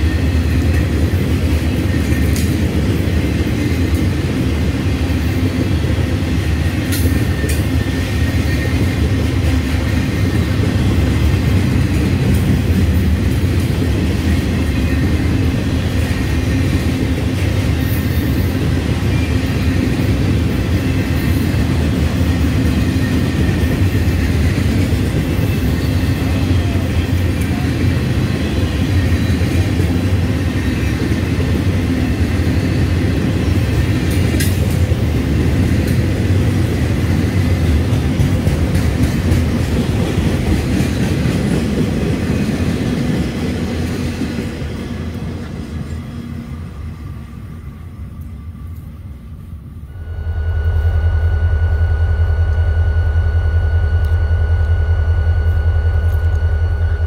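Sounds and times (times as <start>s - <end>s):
diesel locomotive engine running: 0.0s - 57.0s
rail cars rumbling past: 0.0s - 57.0s.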